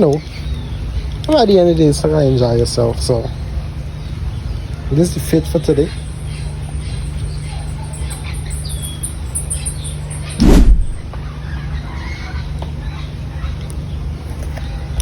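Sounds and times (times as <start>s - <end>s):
high bird chirps: 6.0s - 11.0s
loud bump: 10.4s - 11.1s
steady low rumble: 10.4s - 11.1s.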